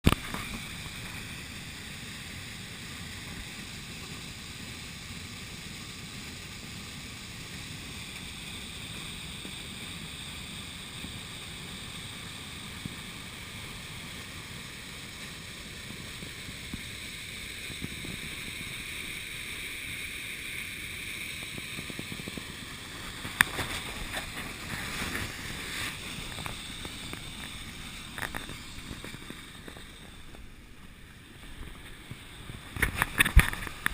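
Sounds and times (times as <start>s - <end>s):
wind noise on microphone: 31.4s - 33.9s.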